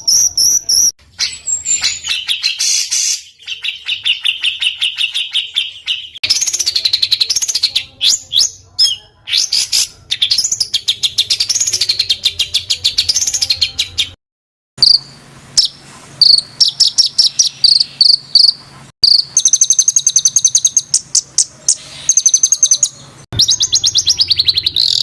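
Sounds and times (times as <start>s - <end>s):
songbird rattling trills: 14.8s - 25.0s.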